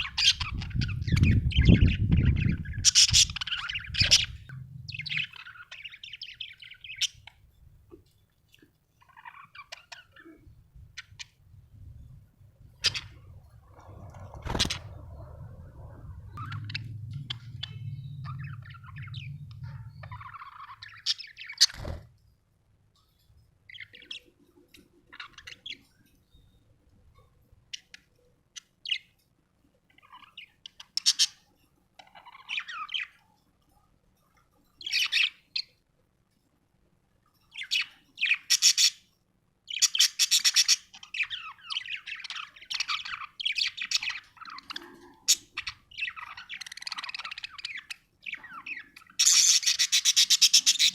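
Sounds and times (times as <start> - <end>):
budgerigar chirping: 0.0 - 7.3, 37.6 - 39.1, 39.7 - 50.9
low hum: 0.6 - 5.6, 11.5 - 21.0.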